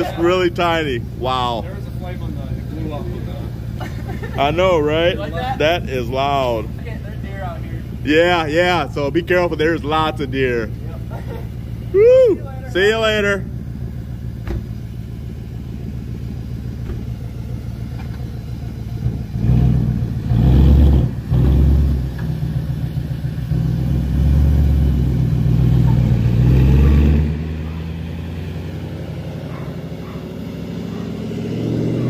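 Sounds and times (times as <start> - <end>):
car engine revving and accelerating: 16.7 - 32.0.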